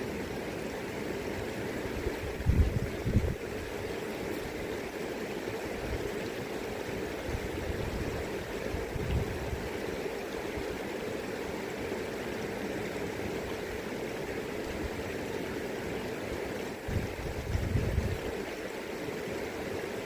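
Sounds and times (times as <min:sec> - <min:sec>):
river current running: 0:00.0 - 0:20.0
wind on microphone: 0:02.0 - 0:03.7, 0:07.3 - 0:09.7, 0:16.8 - 0:18.4.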